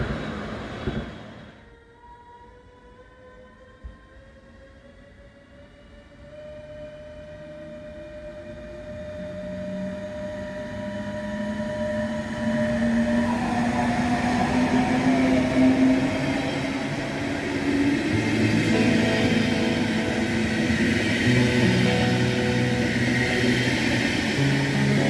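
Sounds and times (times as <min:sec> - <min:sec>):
train running: 0:00.0 - 0:01.7, 0:05.2 - 0:25.0
low drone: 0:05.7 - 0:25.0
steady whine: 0:08.1 - 0:25.0.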